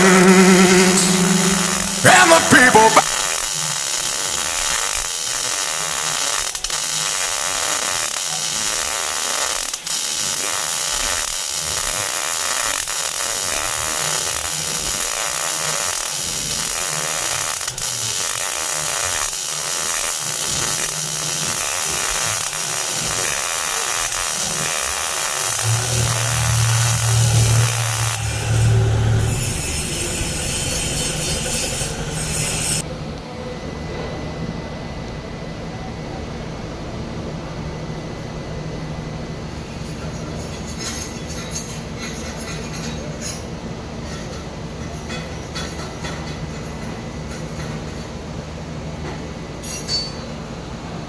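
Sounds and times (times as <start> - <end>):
welding arc hissing: 0.0 - 32.8.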